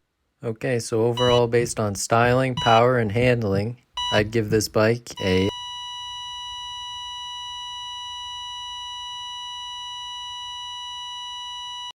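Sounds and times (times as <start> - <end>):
censor beep tone: 1.2 - 1.6, 2.6 - 3.0, 4.0 - 4.4, 5.2 - 12.0.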